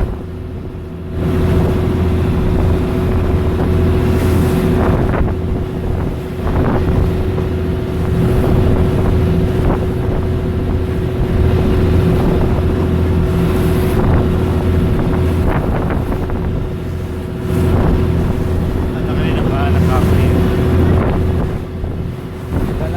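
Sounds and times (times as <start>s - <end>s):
motorboat engine droning: 0.0s - 22.9s
wind buffeting microphone: 0.0s - 22.9s.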